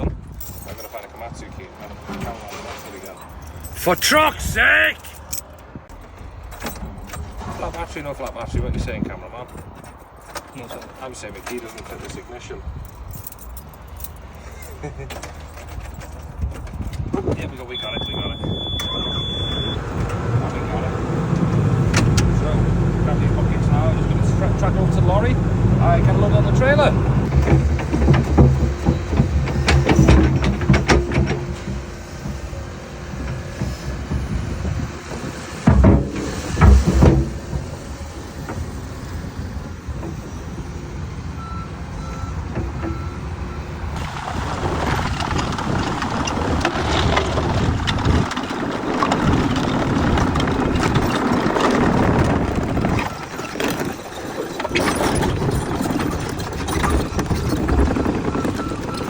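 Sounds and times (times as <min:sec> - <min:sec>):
short alarm beeps: 0:17.8 - 0:19.8
excavator diesel engine running: 0:17.8 - 0:59.0
loud knocks: 0:33.2 - 0:38.6.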